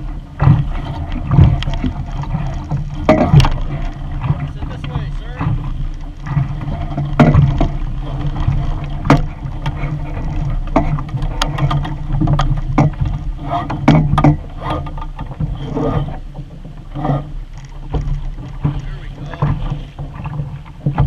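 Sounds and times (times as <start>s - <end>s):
water splashing against boat hull: 0.0s - 21.0s
wind rumble on microphone: 0.0s - 21.0s
sharp knocks: 6.3s - 7.8s, 8.5s - 15.4s.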